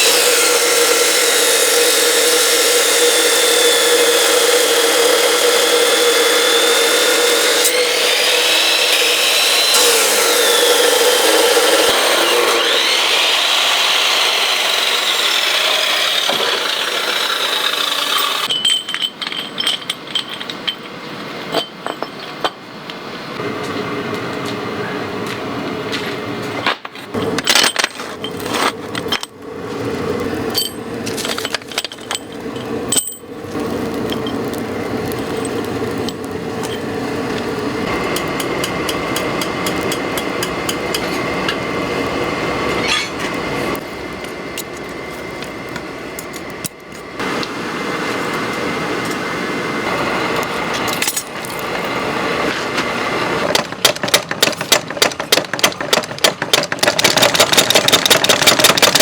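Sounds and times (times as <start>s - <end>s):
workshop machinery running: 0.0s - 20.8s, 23.4s - 59.0s
metal clanks and strikes: 18.2s - 22.7s, 30.5s - 33.3s, 42.7s - 43.4s, 53.5s - 59.0s.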